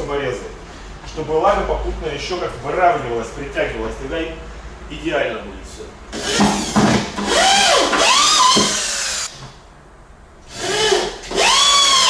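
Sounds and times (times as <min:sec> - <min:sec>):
drill driving screws into wood: 0:06.1 - 0:09.4, 0:10.4 - 0:12.0.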